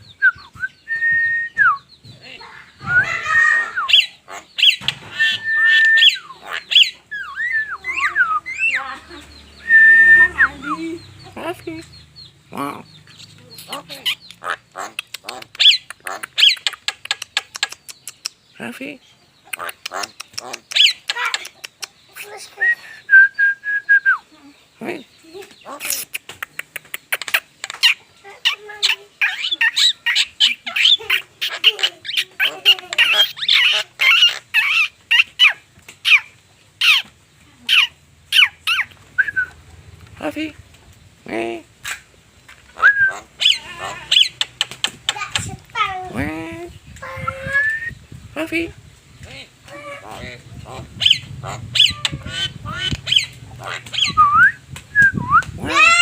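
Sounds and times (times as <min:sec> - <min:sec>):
myna calling: 0:00.0 - 0:39.6, 0:42.7 - 0:54.6, 0:55.4 - 0:56.0
bird whistling and rasping: 0:02.8 - 0:08.9, 0:09.6 - 0:10.8, 0:42.8 - 0:44.4, 0:51.0 - 0:55.6.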